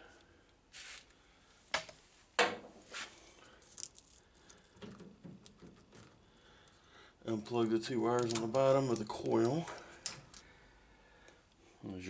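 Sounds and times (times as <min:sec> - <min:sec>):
metal parts clunk: 0:08.0 - 0:10.5.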